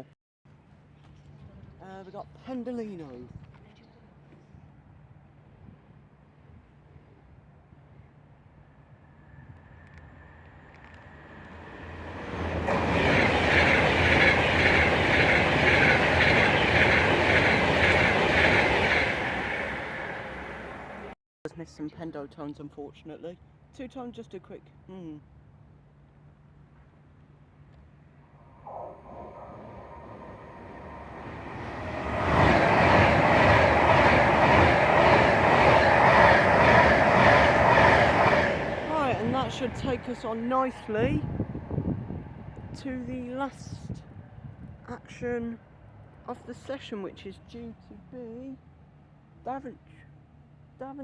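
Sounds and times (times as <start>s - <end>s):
electric train passing: 8.2s - 21.2s, 27.9s - 44.7s.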